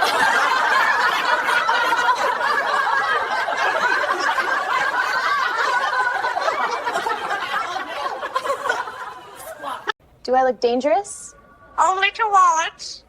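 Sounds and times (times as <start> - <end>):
people laughing together: 0.0 - 10.0.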